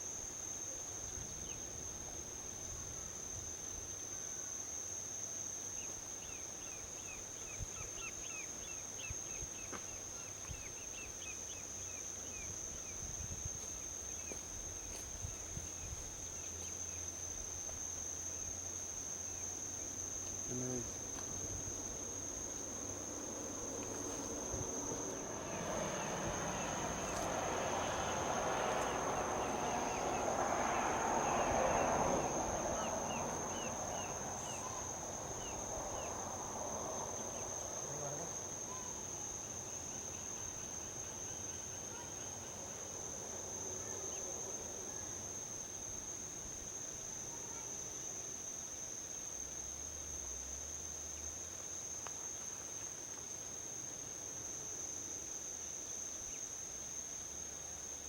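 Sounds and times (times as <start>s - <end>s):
insects trilling: 0.0s - 58.0s
vehicle passing on highway: 20.0s - 38.7s.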